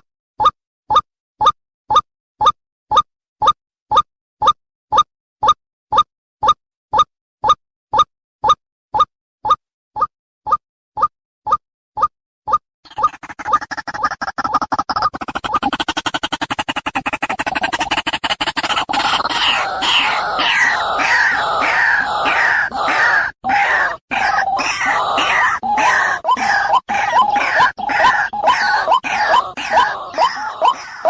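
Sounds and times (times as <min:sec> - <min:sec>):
waterhen calling: 0:19.6 - 0:31.0.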